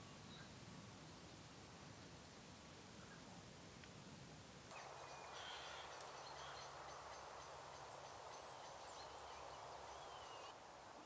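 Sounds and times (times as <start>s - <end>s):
outdoor hiss: 0.0s - 11.0s
bird chirps: 4.8s - 10.5s.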